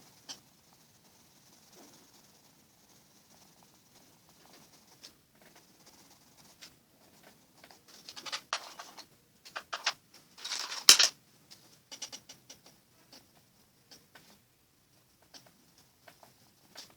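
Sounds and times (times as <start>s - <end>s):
pencil scratching on paper: 0.0s - 10.7s.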